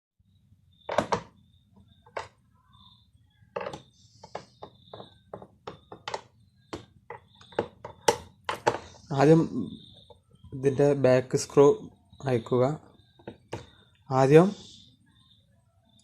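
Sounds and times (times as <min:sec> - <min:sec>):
hard objects clicking: 0:03.6 - 0:09.0.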